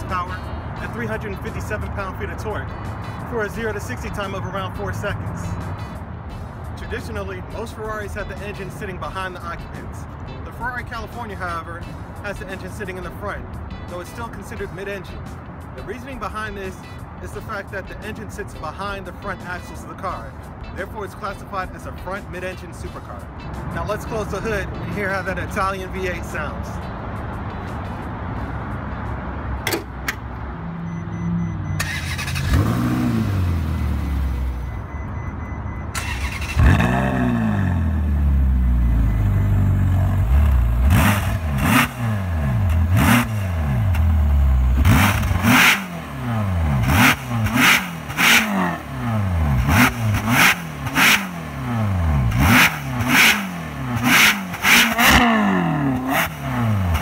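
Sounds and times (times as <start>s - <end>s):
sports car engine revving: 31.5s - 34.7s, 36.0s - 57.0s.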